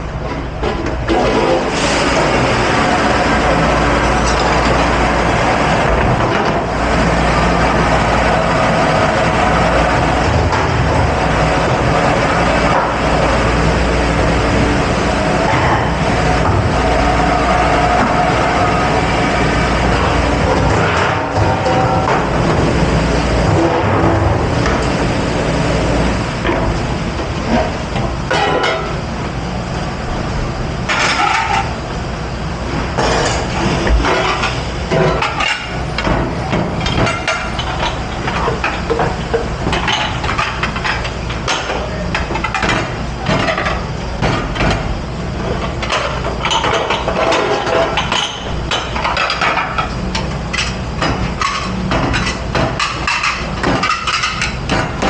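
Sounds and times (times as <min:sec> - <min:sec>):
dishes and pans clattering: 0:28.3 - 0:28.9, 0:50.5 - 0:55.0.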